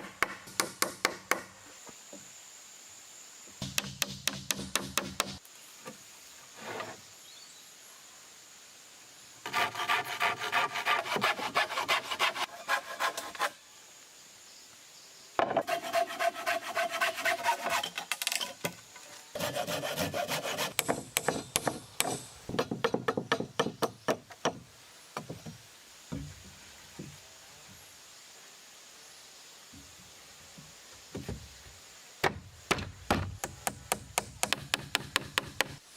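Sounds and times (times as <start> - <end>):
hand saw cutting wood: 9.4 - 13.6, 15.4 - 18.1, 19.4 - 22.2.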